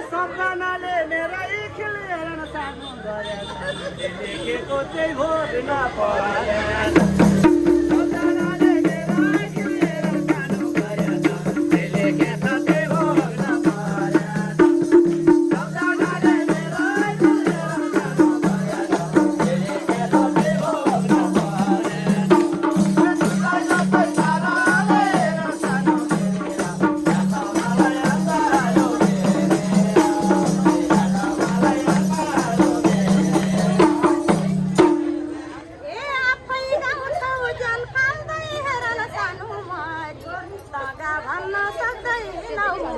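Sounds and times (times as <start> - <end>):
shaken jingle percussion: 6.8 - 35.2
drum strokes: 6.8 - 35.6.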